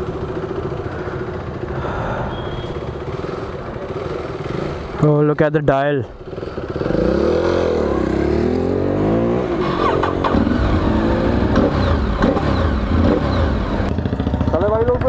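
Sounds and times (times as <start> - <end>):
motorcycles idling: 0.0 - 15.0
motorcycle engine revving: 2.3 - 5.4, 6.1 - 15.0.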